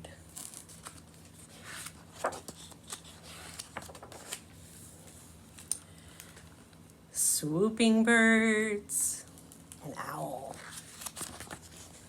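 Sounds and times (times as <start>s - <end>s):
paper rustling: 0.3s - 5.7s, 10.5s - 12.0s.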